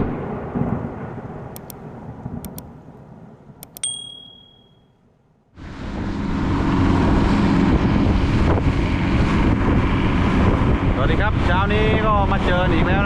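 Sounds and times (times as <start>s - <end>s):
sharp clicks: 1.6s - 1.8s, 2.4s - 2.7s, 3.6s - 4.6s
short high ding: 3.7s - 4.9s
wind on microphone: 5.7s - 13.0s.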